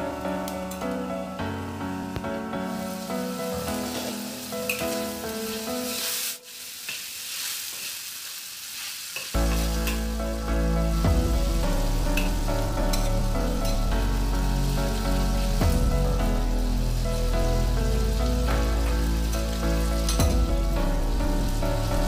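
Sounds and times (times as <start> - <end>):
background music: 0.0 - 6.4, 9.4 - 22.0
meat sizzling in a wok: 2.6 - 22.0
metal spatula stirring: 12.1 - 13.9.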